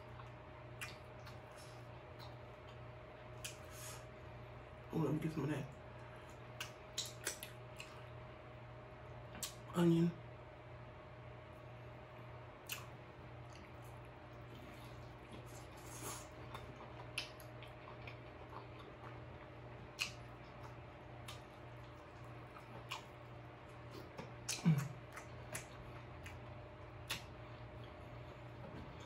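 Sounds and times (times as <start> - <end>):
person chewing with mouth smacks: 0.0 - 2.8, 3.4 - 3.9, 6.3 - 8.0, 12.6 - 29.0.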